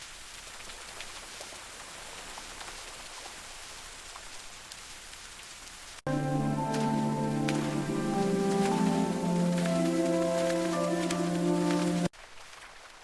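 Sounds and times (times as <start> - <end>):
steady rain falling: 0.0 - 13.0
music: 6.1 - 12.1.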